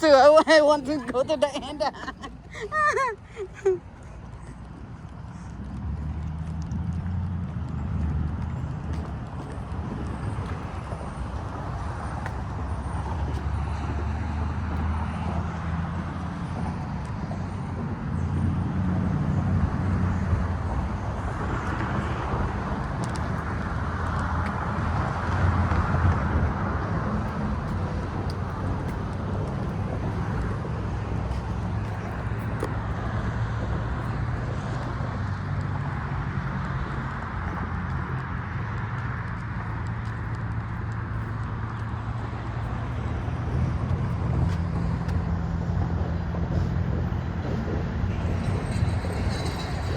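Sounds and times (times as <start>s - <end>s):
low rumble of road traffic: 0.0s - 49.9s.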